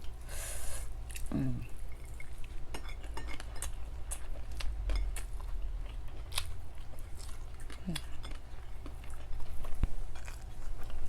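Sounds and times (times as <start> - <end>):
cutlery scraping on plate: 2.1 - 3.8.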